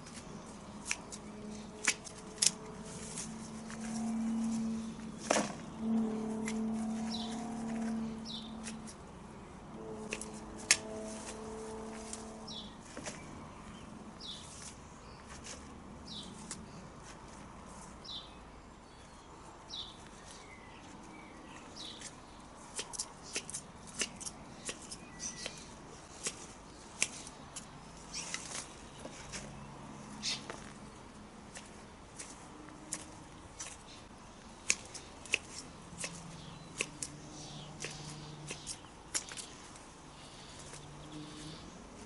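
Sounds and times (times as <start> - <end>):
secateurs snipping and clicking: 0.0 - 4.2, 6.3 - 9.0, 10.0 - 12.3, 22.0 - 29.5, 31.5 - 39.8
low steady hum: 0.0 - 42.0
small bird chirping: 6.3 - 9.0, 22.8 - 26.3, 27.0 - 30.7, 33.0 - 41.8.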